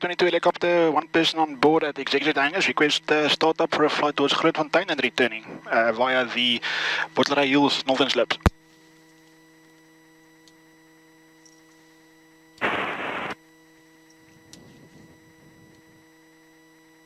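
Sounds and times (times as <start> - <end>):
electrical hum on radio: 0.0 - 8.6, 12.6 - 13.4
burst of radio static: 12.6 - 13.4.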